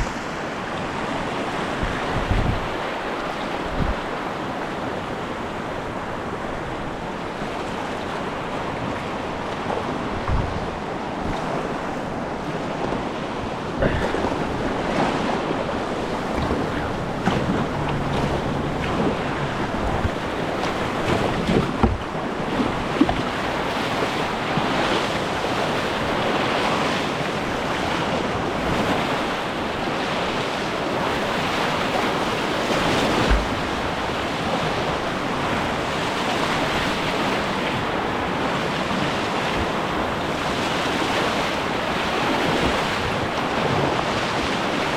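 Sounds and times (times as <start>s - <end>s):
whitewater river rushing: 0.0s - 44.9s
sharp knocks and splashes: 9.6s - 11.6s, 15.9s - 25.3s, 31.6s - 35.6s.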